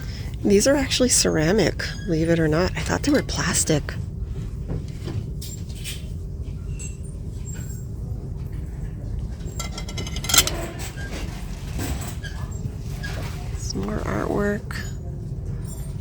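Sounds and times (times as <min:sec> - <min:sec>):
low rumble of shop noise: 0:00.0 - 0:16.0
loud clatter: 0:09.4 - 0:10.8
light clinks and knocks: 0:09.4 - 0:10.9.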